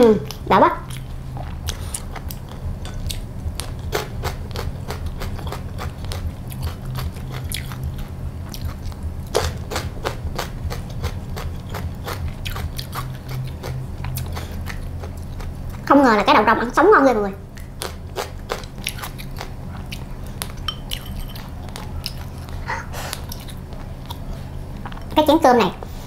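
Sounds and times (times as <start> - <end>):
crisp chewing crunches: 0.3 - 15.9.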